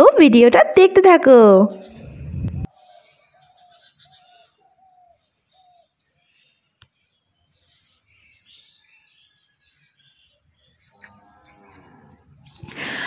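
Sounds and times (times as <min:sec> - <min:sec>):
higher bird chirping: 0:01.6 - 0:13.0
bird cooing: 0:01.8 - 0:05.9.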